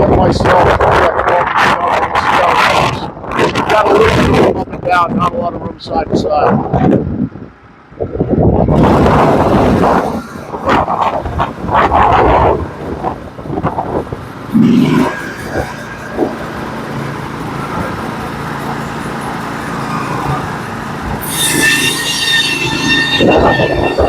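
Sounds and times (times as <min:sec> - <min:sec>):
bandsaw mill running: 0:14.5 - 0:24.0
high squeal of saw band: 0:19.6 - 0:24.0.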